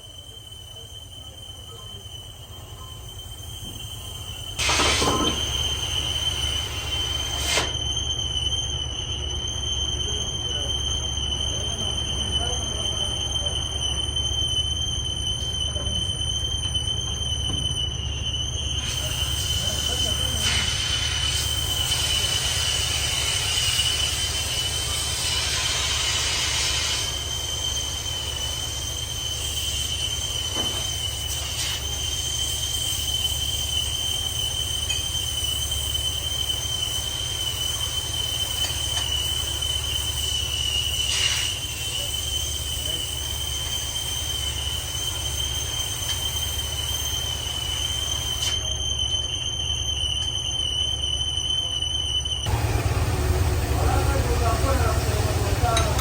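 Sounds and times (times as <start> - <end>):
high-pitched squeal of pipe cutting: 0.0 - 56.0
low machine hum: 52.5 - 56.0.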